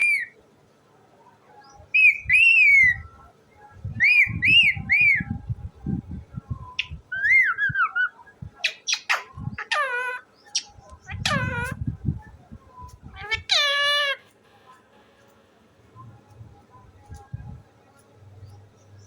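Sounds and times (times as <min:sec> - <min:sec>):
parrot squawking: 0:06.8 - 0:11.8, 0:13.1 - 0:14.4.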